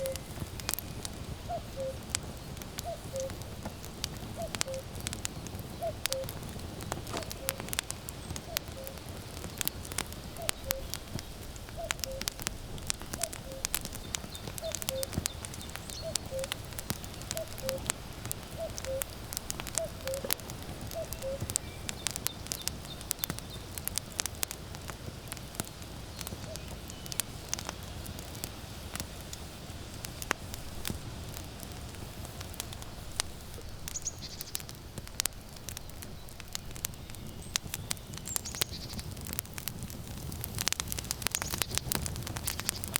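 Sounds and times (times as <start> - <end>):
cuckoo calling: 0.0 - 0.9, 1.5 - 2.1, 2.8 - 3.5, 4.4 - 5.0, 5.7 - 6.4, 7.0 - 9.1, 10.3 - 11.1, 11.7 - 12.4, 13.1 - 23.4
wood fire crackling: 0.0 - 42.9.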